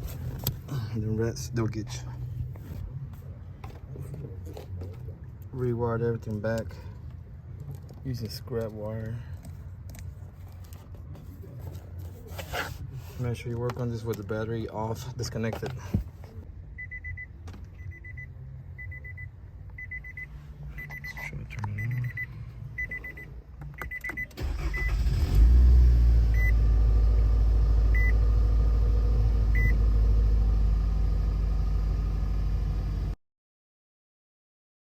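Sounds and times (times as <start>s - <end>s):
car warning chime beeping: 16.8s - 25.1s, 26.3s - 26.6s, 27.9s - 28.2s, 29.5s - 29.8s
car engine cranking and running: 24.0s - 33.2s.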